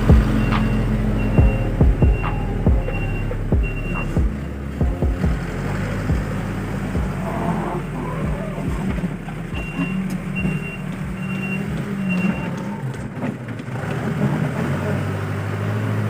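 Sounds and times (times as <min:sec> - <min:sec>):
diesel engine running: 0:00.0 - 0:16.0
reversing alarm beeps: 0:00.1 - 0:04.3, 0:09.6 - 0:12.6.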